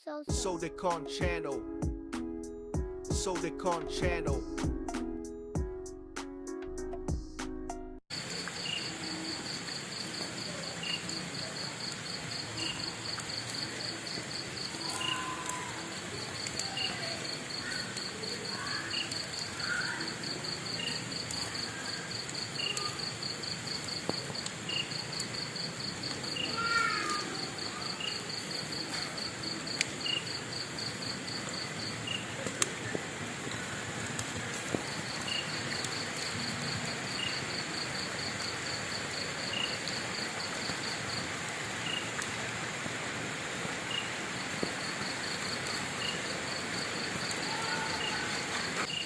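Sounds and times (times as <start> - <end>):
music: 0.3 - 8.0
insects trilling: 8.1 - 49.0
short insect chirp: 8.2 - 15.6, 16.4 - 32.4, 34.8 - 41.2, 41.8 - 42.1, 43.9 - 44.1.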